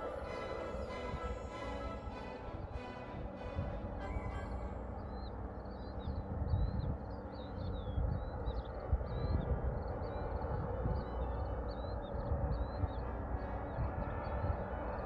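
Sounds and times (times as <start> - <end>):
gusty wind buffeting microphone: 0.0 - 15.0
small birds chirping: 4.0 - 15.0.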